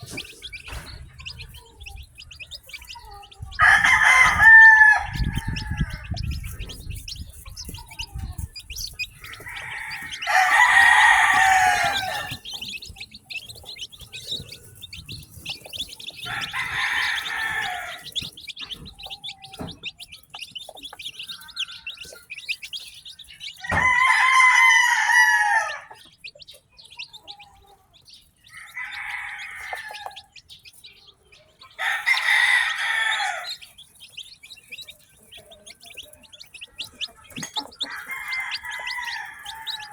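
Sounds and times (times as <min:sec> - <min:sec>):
chicks peeping: 0:00.0 - 0:39.9
rooster crowing: 0:03.6 - 0:06.4, 0:09.2 - 0:12.6, 0:16.2 - 0:18.2, 0:23.6 - 0:26.0, 0:28.6 - 0:30.2, 0:31.8 - 0:33.6, 0:37.8 - 0:39.9.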